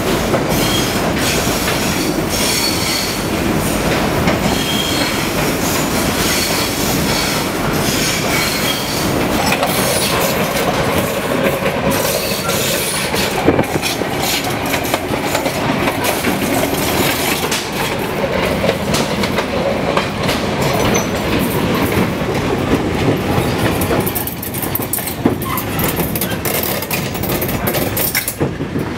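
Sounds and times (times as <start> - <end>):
electric railcar rumbling: 0.0 - 28.9
wheels clattering over rails: 8.2 - 28.9.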